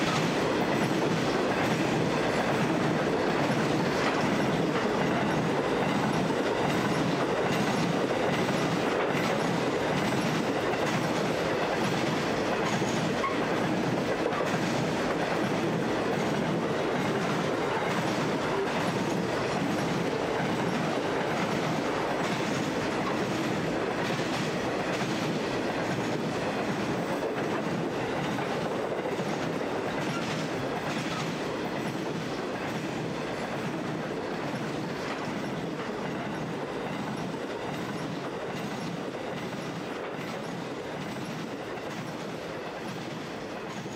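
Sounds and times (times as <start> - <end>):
freight train wheels rumbling and clicking: 0.0 - 43.9.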